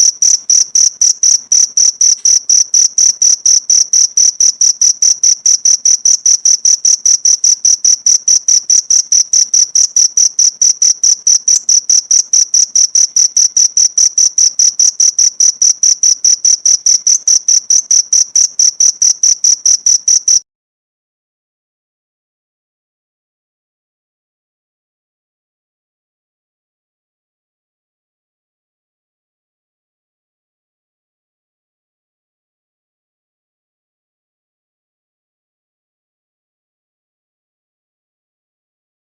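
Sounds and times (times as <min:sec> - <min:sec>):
cricket chirping: 0:00.0 - 0:20.4.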